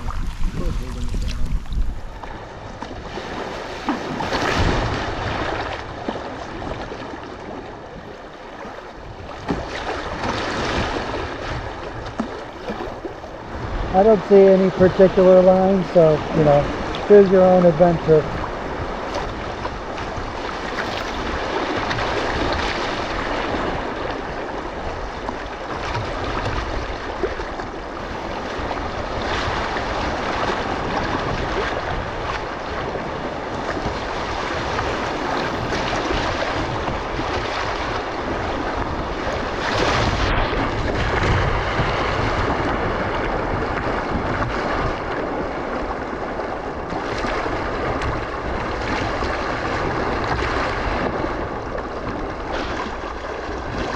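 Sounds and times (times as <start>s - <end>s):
wind rumbling on microphone: 0.0s - 53.9s
river water rushing: 12.2s - 43.5s.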